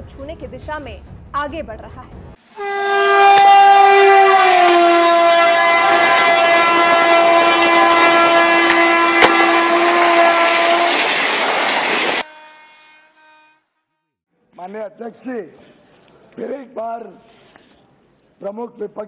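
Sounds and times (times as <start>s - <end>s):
train horn long blast: 2.5s - 14.2s
train rumble and clatter on rails: 10.3s - 12.3s.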